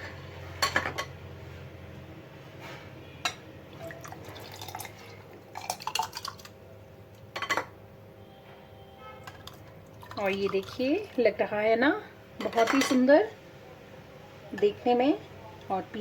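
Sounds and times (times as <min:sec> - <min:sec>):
liquid pouring and dripping: 0:03.7 - 0:06.6.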